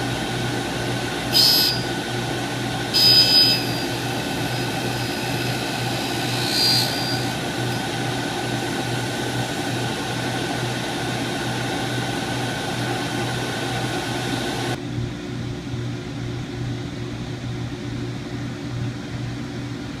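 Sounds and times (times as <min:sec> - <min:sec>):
drill-grinding machine humming: 0:00.0 - 0:14.8
high hiss and whine: 0:00.0 - 0:14.8.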